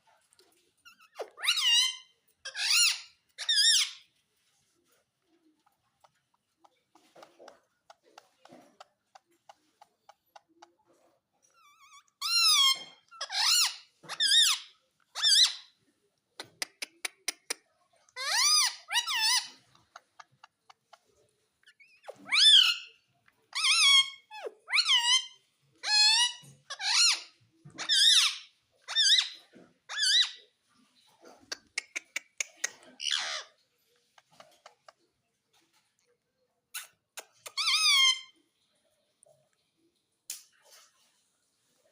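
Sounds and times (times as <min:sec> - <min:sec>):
parrot squeaky calls: 0:00.8 - 0:04.2, 0:11.4 - 0:15.8, 0:18.1 - 0:21.0, 0:21.6 - 0:30.5, 0:31.5 - 0:35.0, 0:36.7 - 0:38.4.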